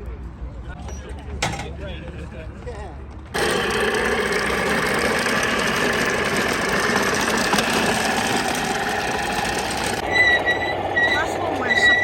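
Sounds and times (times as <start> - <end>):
engine idling: 3.4 - 12.0.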